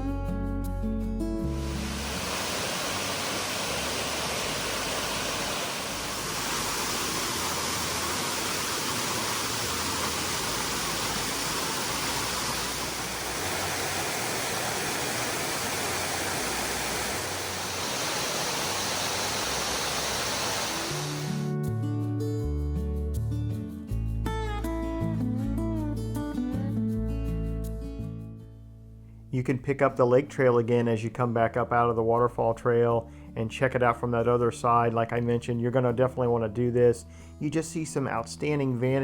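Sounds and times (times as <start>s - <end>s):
waterfall roar: 1.6s - 21.4s.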